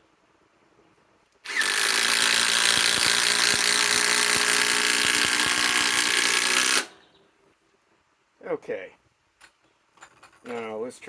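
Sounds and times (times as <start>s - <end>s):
screw driven into timber: 1.4s - 7.0s
impact driver hammering: 1.5s - 7.0s.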